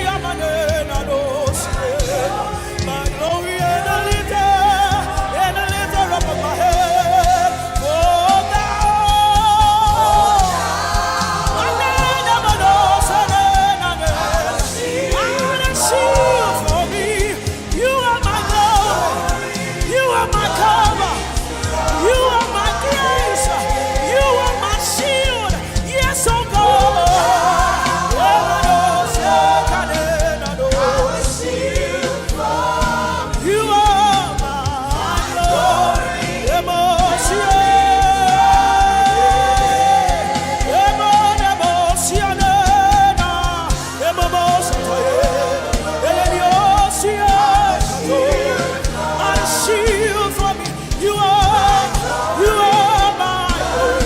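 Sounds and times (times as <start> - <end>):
instrumental accompaniment with bass: 0.0 - 54.0
voices singing worship song: 0.0 - 54.0.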